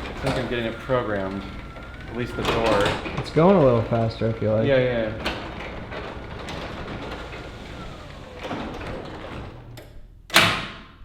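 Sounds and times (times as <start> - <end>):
garage door rumbling along tracks: 0.0 - 11.0.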